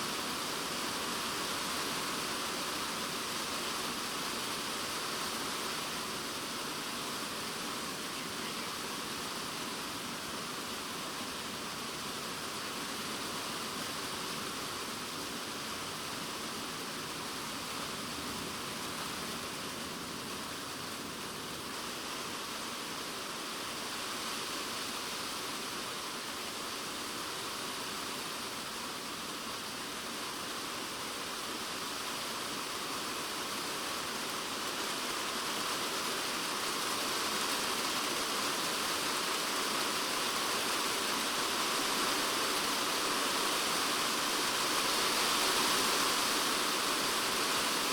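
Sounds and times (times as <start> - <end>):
rain on a plastic roof: 0.0 - 47.9.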